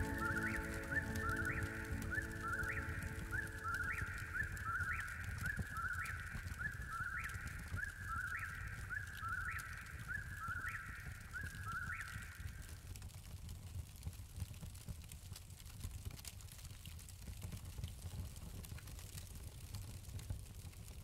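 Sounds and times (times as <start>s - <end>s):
bird chirping: 0.0s - 12.4s.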